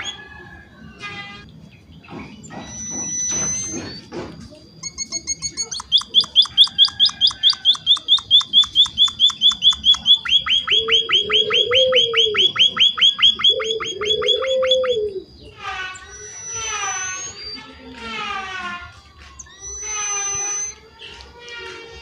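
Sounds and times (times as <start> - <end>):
bird chirping rapidly: 2.0 - 4.1, 4.8 - 17.7, 19.4 - 20.8.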